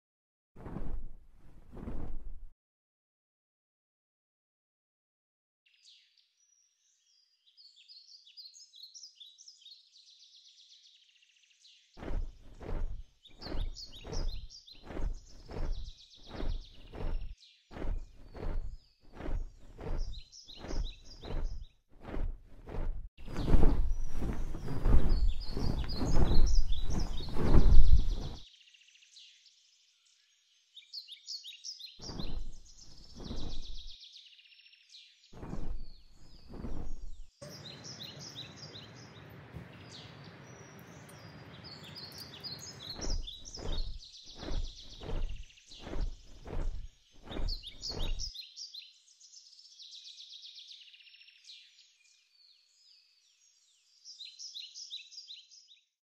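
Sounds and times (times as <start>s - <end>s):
small birds chirping: 5.7s - 55.9s
low rumbling microphone noise: 22.8s - 28.4s.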